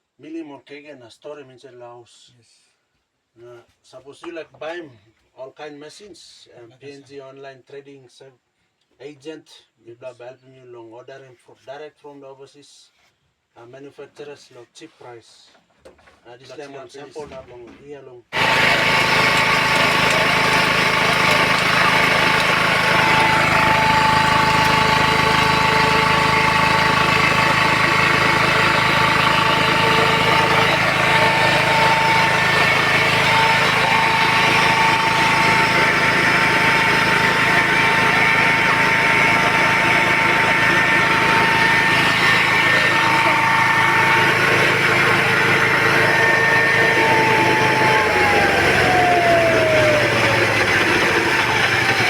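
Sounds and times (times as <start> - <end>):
milling machine motor whine: 18.4 - 52.0.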